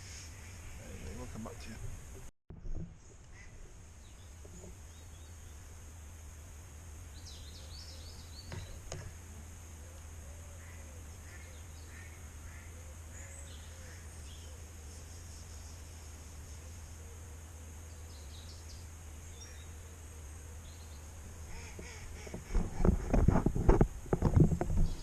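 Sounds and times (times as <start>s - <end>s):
steady low hum: 0.0s - 25.0s
small birds chirping: 3.3s - 5.7s, 7.0s - 22.6s.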